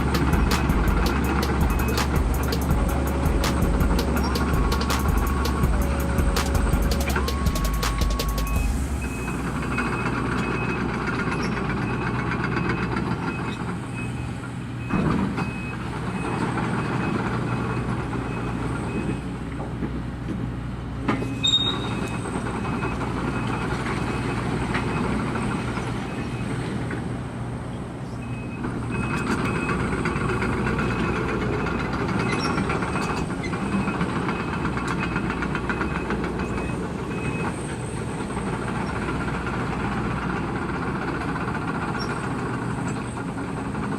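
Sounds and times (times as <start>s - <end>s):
high beeping alarm: 0.0s - 10.7s
excavator diesel engine running: 0.0s - 43.9s.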